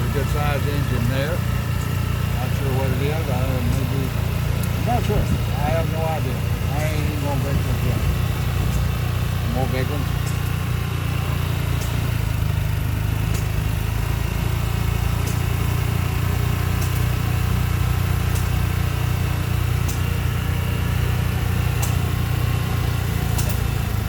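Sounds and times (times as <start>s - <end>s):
small engine droning: 0.0s - 24.0s
faint sharp clicks: 21.8s - 22.0s, 23.4s - 23.6s.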